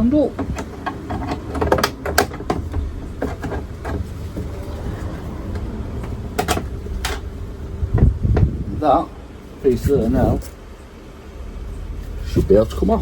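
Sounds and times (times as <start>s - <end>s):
steady low hum: 0.0s - 13.0s
clicks and knocks of tools: 0.4s - 4.5s.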